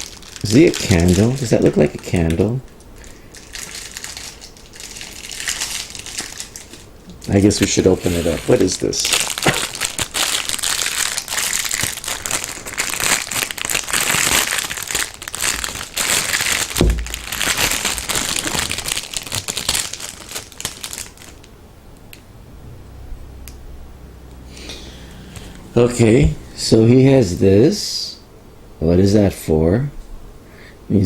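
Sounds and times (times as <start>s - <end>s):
packaging crinkling: 0.0s - 21.5s
low thump: 16.8s - 17.2s.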